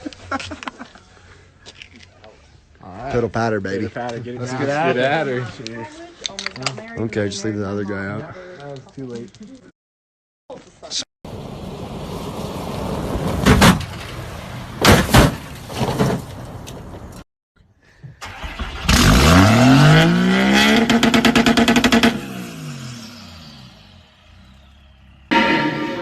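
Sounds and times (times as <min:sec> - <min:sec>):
vehicle noise: 0:11.3 - 0:17.2, 0:18.2 - 0:26.0
truck engine revving: 0:18.3 - 0:25.2.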